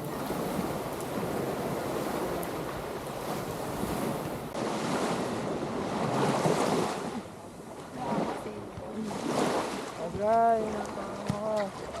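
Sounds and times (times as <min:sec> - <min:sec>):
ocean surf rushing in: 0:00.0 - 0:07.2
wind buffeting microphone: 0:00.0 - 0:07.2.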